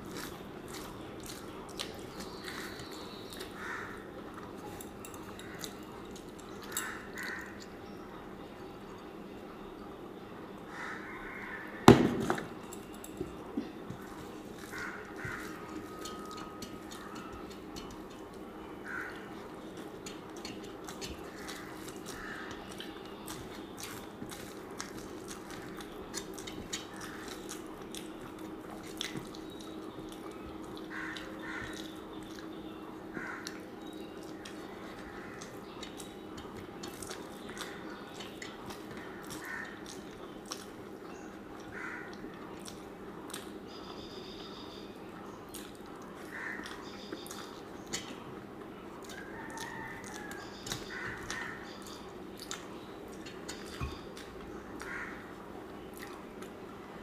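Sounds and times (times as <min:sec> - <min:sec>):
person chewing: 0:00.0 - 0:07.8, 0:12.7 - 0:32.6, 0:33.2 - 0:43.6, 0:45.5 - 0:56.8
wet lip-smacking: 0:14.7 - 0:18.4, 0:19.2 - 0:23.0, 0:23.8 - 0:32.5, 0:34.3 - 0:40.8, 0:45.5 - 0:48.3, 0:49.0 - 0:54.9
mouth clicks: 0:16.0 - 0:18.4, 0:19.8 - 0:22.9.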